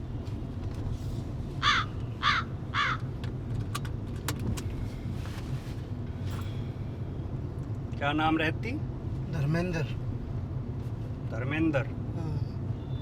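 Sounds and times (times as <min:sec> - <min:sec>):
car rumbling: 0:00.0 - 0:13.0
crow cawing: 0:01.6 - 0:03.0.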